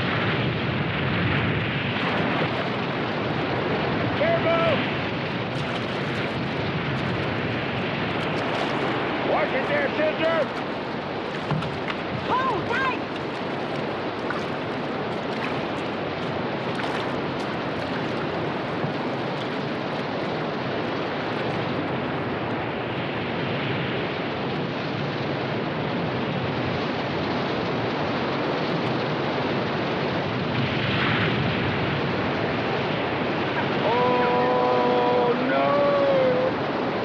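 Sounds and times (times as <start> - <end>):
sharp water splashes: 1.2 - 24.3
rushing river rapids: 2.0 - 23.4.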